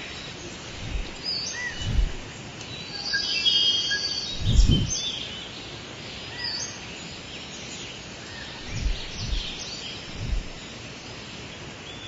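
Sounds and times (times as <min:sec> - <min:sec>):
steady outdoor hiss: 0:00.0 - 0:12.0
low whooshes: 0:00.7 - 0:02.3, 0:04.3 - 0:05.0, 0:08.6 - 0:10.6
birds chirping and singing: 0:04.1 - 0:05.2, 0:08.5 - 0:10.7.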